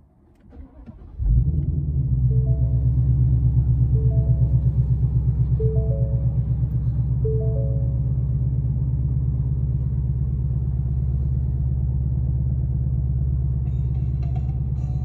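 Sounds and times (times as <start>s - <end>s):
car engine idling: 0.4s - 15.0s
three-note chime: 2.3s - 3.1s, 3.9s - 4.9s, 5.6s - 8.2s.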